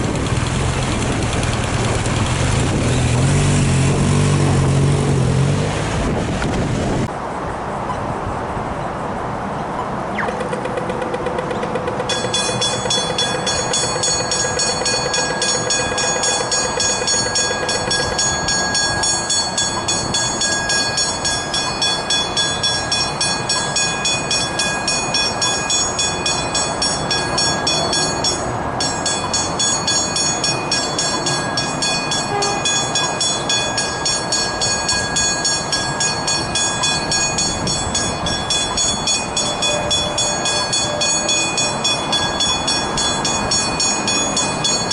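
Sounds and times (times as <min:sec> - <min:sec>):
train rumbling: 0:00.0 - 0:44.9
level crossing warning bells: 0:10.2 - 0:44.9.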